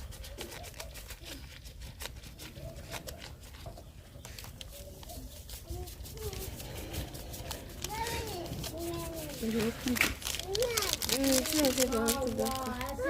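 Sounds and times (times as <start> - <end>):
wood fire crackling: 6.2 - 13.0.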